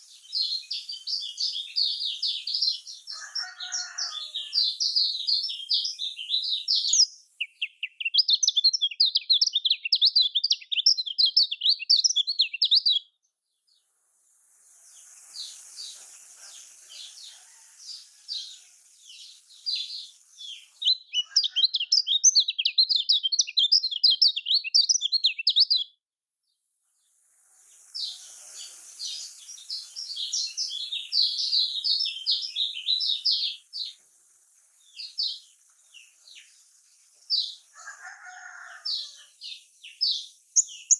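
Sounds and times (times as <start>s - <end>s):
bird singing chattering song: 0.0s - 13.9s, 14.8s - 26.0s, 27.8s - 40.9s.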